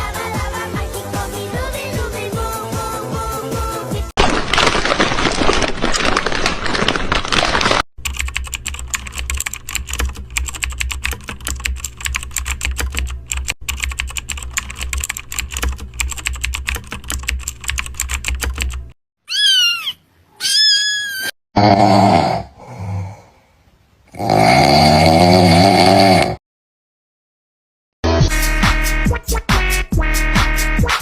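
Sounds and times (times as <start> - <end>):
rapid keyboard typing: 4.6 - 19.0
cat meowing: 19.3 - 21.3.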